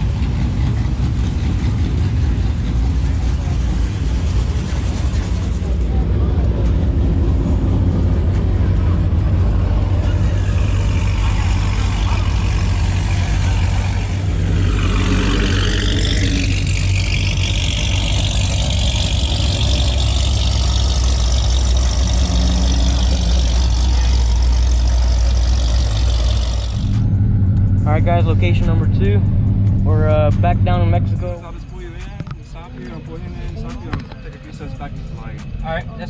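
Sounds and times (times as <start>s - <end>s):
vehicle engine rumbling: 0.0s - 36.0s
rushing sound sweeping in pitch: 8.9s - 31.4s.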